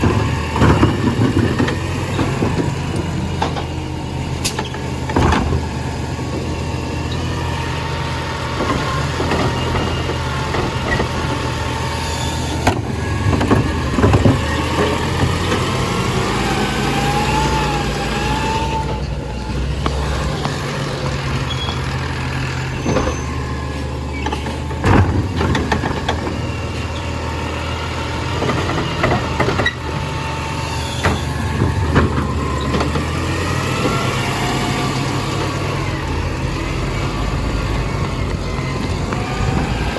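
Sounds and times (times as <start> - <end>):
diesel engine droning: 0.0 - 39.9
sharp knocks and clanks: 4.4 - 5.7, 24.2 - 26.6.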